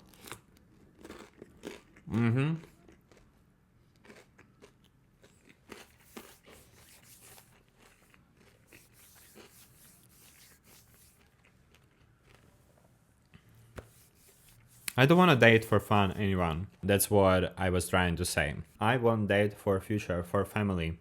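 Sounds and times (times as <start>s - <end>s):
chewing toasted bread: 0.0s - 12.8s
mouth sounds: 2.0s - 2.8s.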